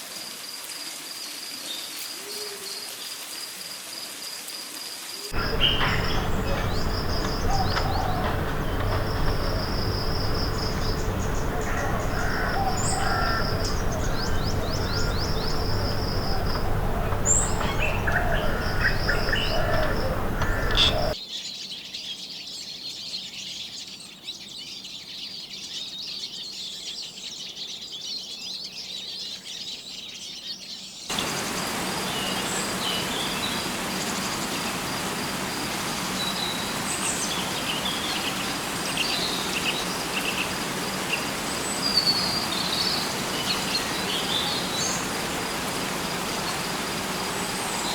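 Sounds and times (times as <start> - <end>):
insects buzzing: 5.3 - 21.2, 31.1 - 47.9
birds whistling and chirping: 5.4 - 21.2.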